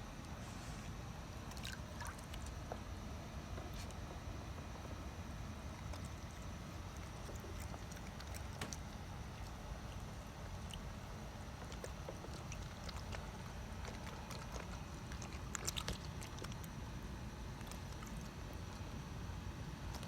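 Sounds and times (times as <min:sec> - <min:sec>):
raccoons clicking and tapping: 0:05.7 - 0:16.7.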